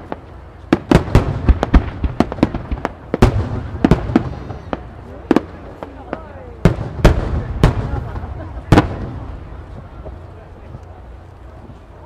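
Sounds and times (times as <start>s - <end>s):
faint firework whistle: 3.7s - 4.9s.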